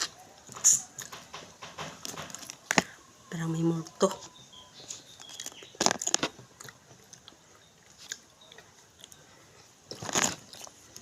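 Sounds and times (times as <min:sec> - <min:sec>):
food being bitten and crunched: 0:04.8 - 0:09.2, 0:09.9 - 0:11.0.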